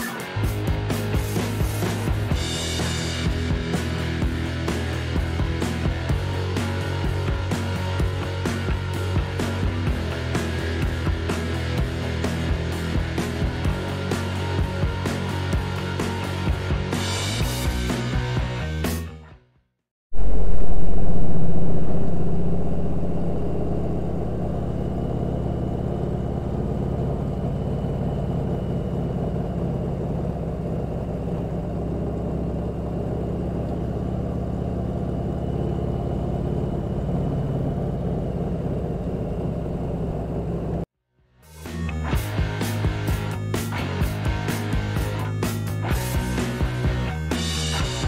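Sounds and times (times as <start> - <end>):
motorcycle engine running: 0.4 - 18.0, 20.2 - 40.9.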